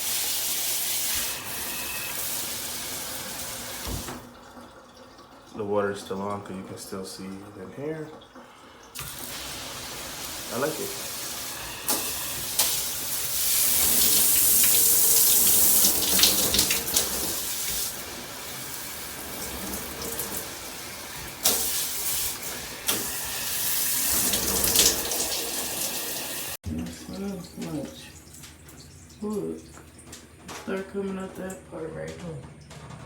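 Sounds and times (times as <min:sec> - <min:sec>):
shower head spraying water: 0:09.0 - 0:26.6.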